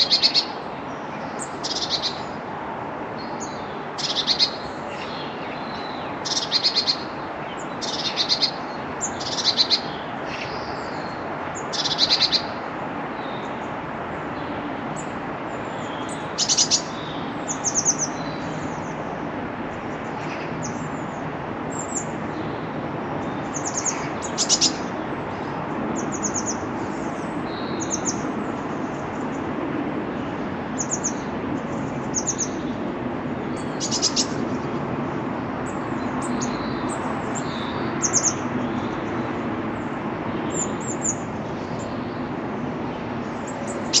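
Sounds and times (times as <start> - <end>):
birds chirping and trilling: 0.0 - 2.4, 3.2 - 44.0
steady low background noise: 0.0 - 44.0.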